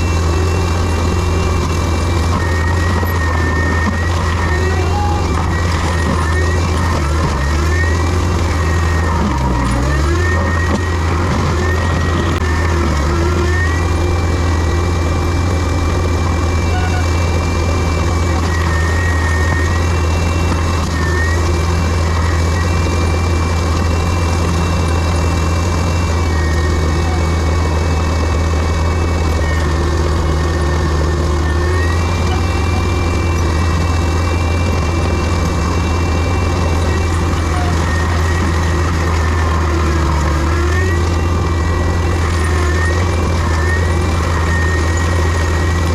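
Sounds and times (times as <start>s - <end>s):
diesel machine low hum: 0.0s - 45.9s
high whine shifting pitch: 0.0s - 45.9s.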